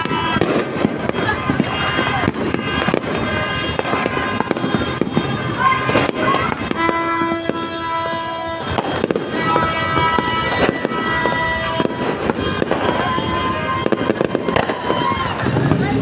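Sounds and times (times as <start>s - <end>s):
fireworks crackling and popping: 0.0s - 16.0s.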